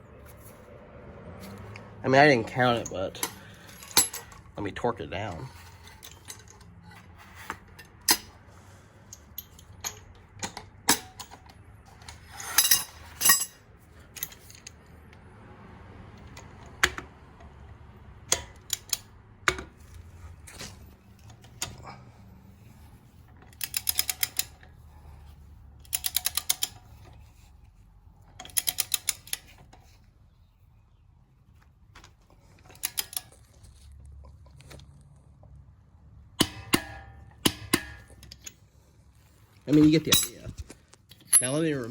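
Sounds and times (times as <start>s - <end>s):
metal clinks and knocks: 1.4s - 8.4s, 9.0s - 14.9s, 39.5s - 41.9s
rapid ratchet clicking: 23.6s - 24.6s, 25.9s - 26.8s.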